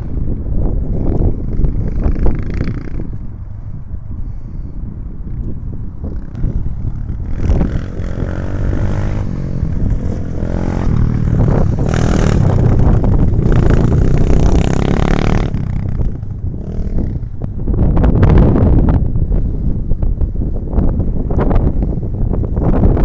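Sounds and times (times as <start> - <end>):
motorcycle engine revving: 6.1 - 17.4.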